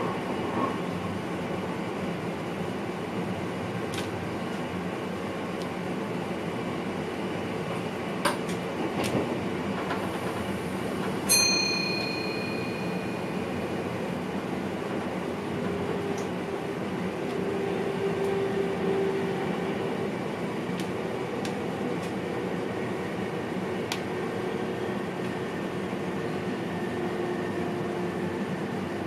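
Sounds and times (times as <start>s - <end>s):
train rumbling: 0.0s - 29.0s
sharp metallic clink: 11.3s - 13.2s.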